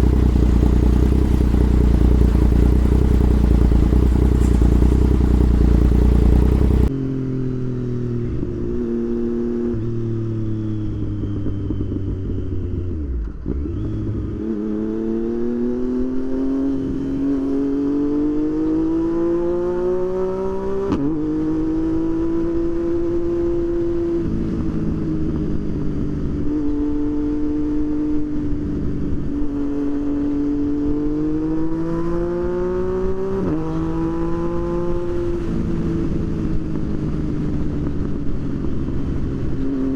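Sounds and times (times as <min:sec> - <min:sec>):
low rumble: 0:00.0 - 0:06.9
motorcycle engine revving: 0:00.0 - 0:39.9.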